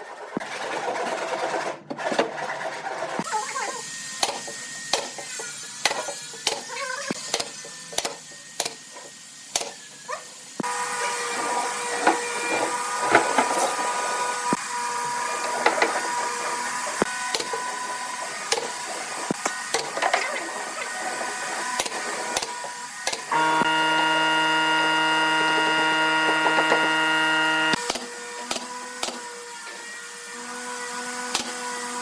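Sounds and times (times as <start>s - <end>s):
small motor running: 20.2s - 29.2s.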